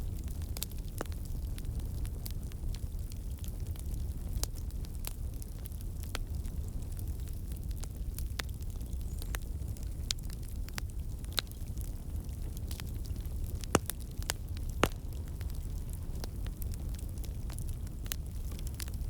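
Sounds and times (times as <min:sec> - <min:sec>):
fire crackling: 0:00.0 - 0:19.0
sharp pops and snaps: 0:13.6 - 0:15.6.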